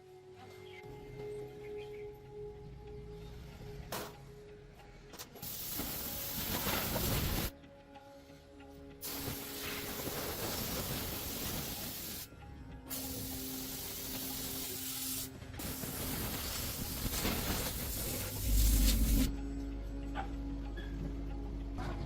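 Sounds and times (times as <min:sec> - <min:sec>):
quiet background music: 0:00.0 - 0:22.0
pressurised spray hissing: 0:05.4 - 0:07.5, 0:09.0 - 0:12.3, 0:12.9 - 0:19.3.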